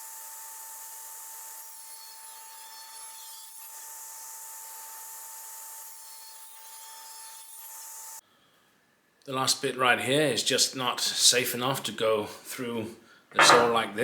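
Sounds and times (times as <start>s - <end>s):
table saw cutting wood: 13.4s - 13.8s.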